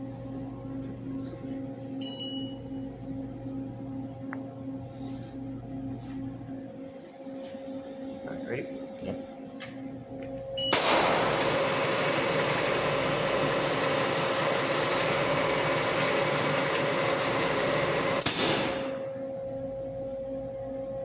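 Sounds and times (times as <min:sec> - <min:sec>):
electrical hum: 0:00.0 - 0:21.0
milling machine spindle running: 0:10.7 - 0:19.2.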